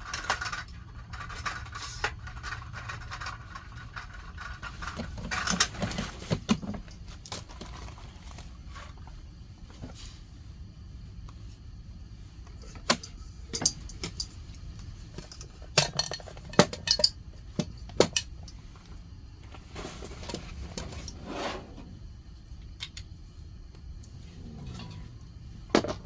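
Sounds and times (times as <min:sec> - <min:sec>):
low background hum: 0:00.0 - 0:26.0
rustling: 0:18.6 - 0:22.1.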